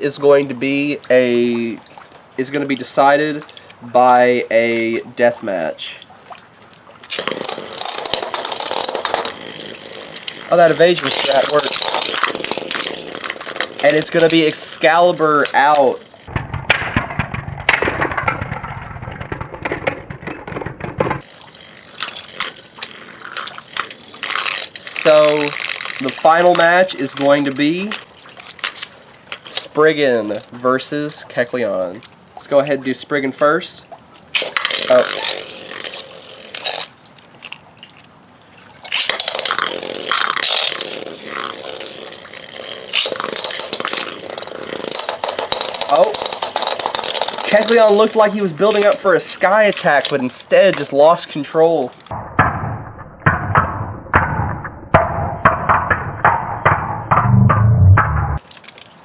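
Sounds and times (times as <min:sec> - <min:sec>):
ripcord launcher pulls: 0:07.0 - 0:18.6, 0:19.7 - 0:30.5, 0:34.3 - 0:37.6, 0:38.8 - 0:49.0
spinning top whirring and rattling: 0:07.0 - 0:30.5, 0:34.3 - 0:37.6, 0:38.8 - 0:50.9
spinning tops clashing: 0:07.1 - 0:17.0, 0:38.8 - 0:48.0.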